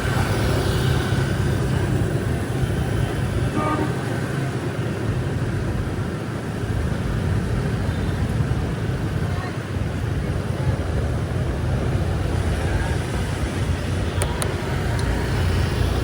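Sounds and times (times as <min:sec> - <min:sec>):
vehicle engines rumbling: 0:00.0 - 0:16.0
car horn toot: 0:03.5 - 0:04.1.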